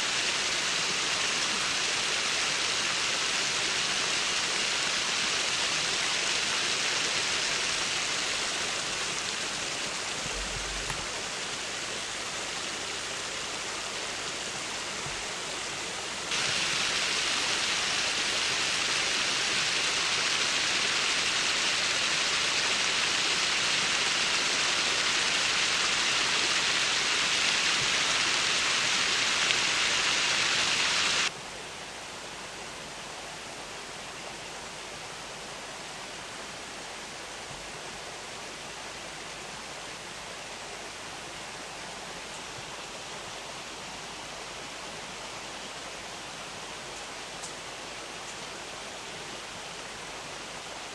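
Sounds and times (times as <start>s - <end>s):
river water rushing over concrete: 0.0s - 31.4s.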